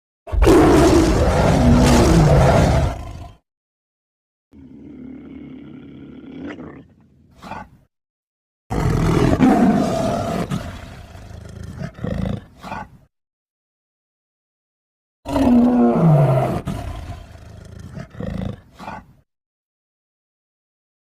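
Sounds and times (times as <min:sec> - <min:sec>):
big cat growling: 0:00.3 - 0:03.4, 0:04.6 - 0:07.8, 0:08.7 - 0:13.0, 0:15.3 - 0:19.2
big cat roaring: 0:00.3 - 0:03.4, 0:04.6 - 0:07.8, 0:08.7 - 0:13.0, 0:15.3 - 0:19.1.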